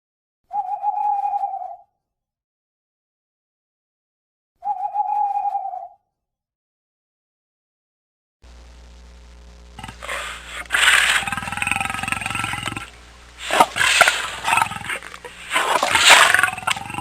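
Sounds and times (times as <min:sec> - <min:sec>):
low steady hum: 0:08.4 - 0:17.0
large animal roaring: 0:09.8 - 0:17.0.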